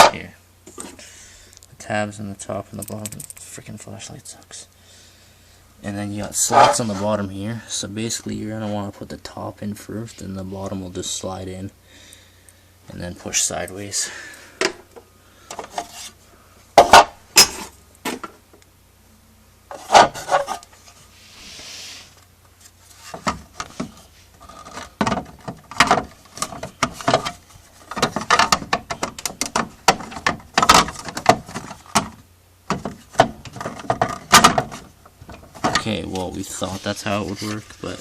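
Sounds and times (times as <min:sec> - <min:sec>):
plastic cover knocking and scraping: 0:22.9 - 0:38.0.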